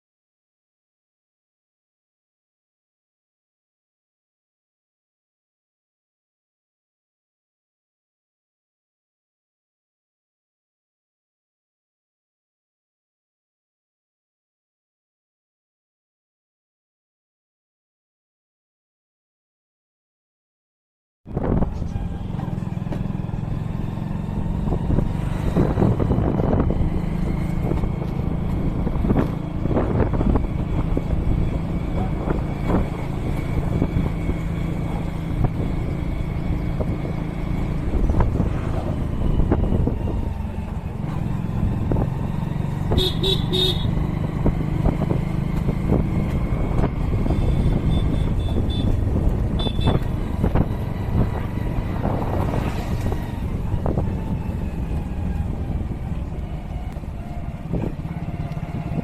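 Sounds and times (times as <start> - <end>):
motorcycle engine running: 21.3 - 59.0
road noise: 21.3 - 59.0
vehicle horn beeps: 42.9 - 44.0, 47.3 - 50.2.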